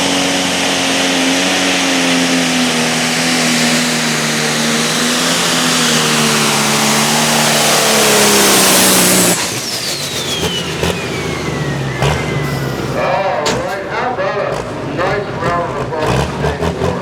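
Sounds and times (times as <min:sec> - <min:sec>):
diesel engine running flat out: 0:00.0 - 0:17.0
turbo whistle gliding down: 0:03.2 - 0:13.4.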